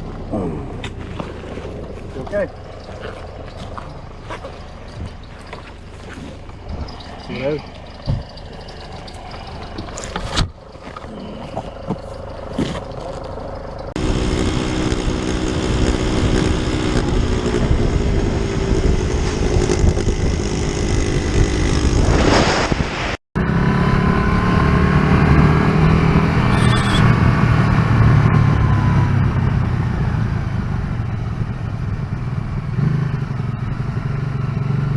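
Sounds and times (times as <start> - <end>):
motorcycle engine running: 0.0 - 22.0, 23.4 - 34.9
road noise with knocks: 0.0 - 22.1
wind noise: 15.4 - 23.2.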